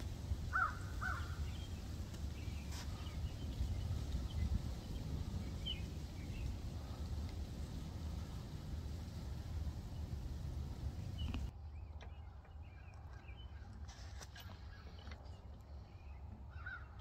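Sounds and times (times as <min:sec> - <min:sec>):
steady low rumble: 0:00.0 - 0:13.7
short bird calls: 0:00.5 - 0:04.9
faint high bird chirps: 0:11.0 - 0:17.0.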